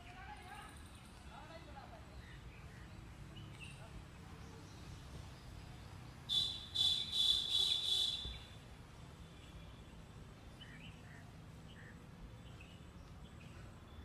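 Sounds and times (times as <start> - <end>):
faint bird chirps: 6.2 - 8.6.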